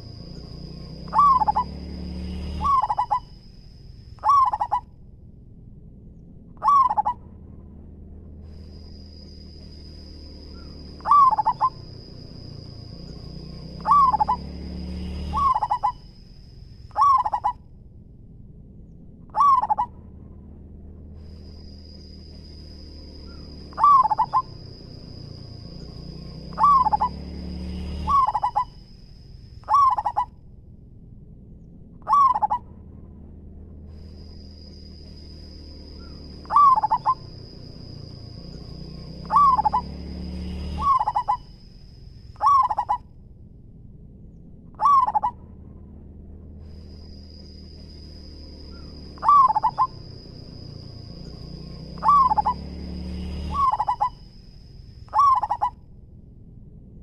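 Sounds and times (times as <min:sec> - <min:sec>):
dove cooing: 0:01.0 - 0:01.8, 0:02.5 - 0:03.3, 0:04.2 - 0:04.8, 0:06.6 - 0:07.2, 0:10.6 - 0:12.0, 0:13.8 - 0:14.5, 0:15.2 - 0:16.0, 0:16.9 - 0:17.6, 0:19.3 - 0:19.9, 0:23.3 - 0:24.6, 0:26.5 - 0:27.2, 0:28.0 - 0:28.7, 0:29.6 - 0:30.3, 0:32.0 - 0:32.6, 0:36.0 - 0:37.4, 0:39.2 - 0:40.0, 0:40.8 - 0:41.5, 0:42.4 - 0:43.0, 0:44.8 - 0:45.4, 0:48.8 - 0:50.2, 0:52.0 - 0:52.7, 0:53.5 - 0:54.2, 0:55.1 - 0:55.7.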